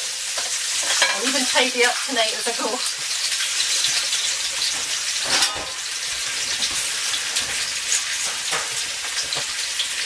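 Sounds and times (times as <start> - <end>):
onion sizzling in hot oil: 0.0 - 10.0.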